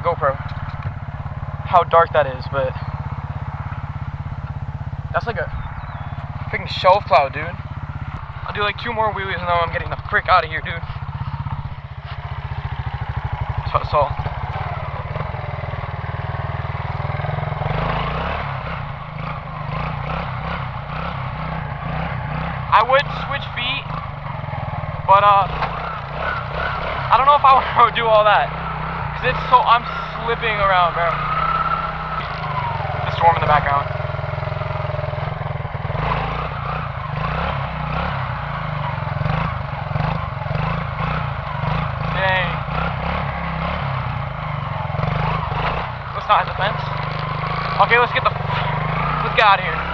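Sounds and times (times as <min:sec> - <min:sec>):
quad engine puttering and revving: 0:00.0 - 0:49.9.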